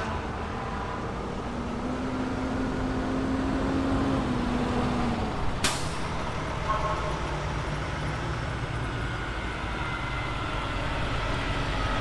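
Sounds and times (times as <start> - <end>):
fire engine engine running: 4.3 - 12.0.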